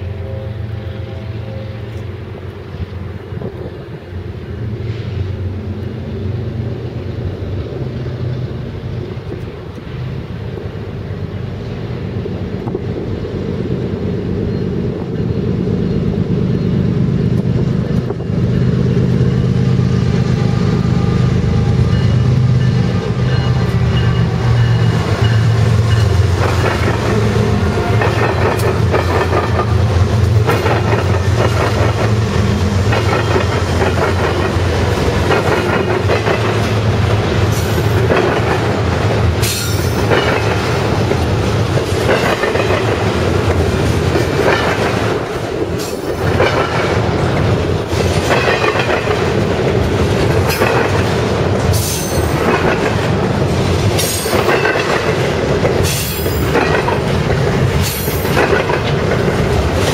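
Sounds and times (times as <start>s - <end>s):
diesel locomotive engine drone: 0.0s - 59.9s
freight cars rolling past: 0.0s - 59.9s
wheels clicking over rail joints: 22.8s - 59.9s.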